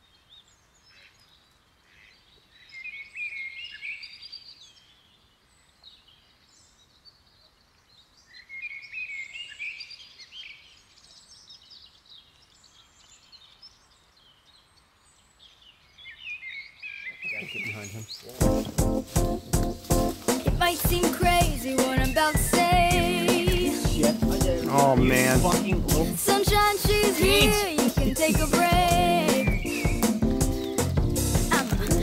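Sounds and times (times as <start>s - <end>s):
faint outdoor hiss: 0.0s - 32.0s
songbirds warbling: 5.7s - 32.0s
bird chirps: 15.4s - 20.5s, 27.4s - 31.2s.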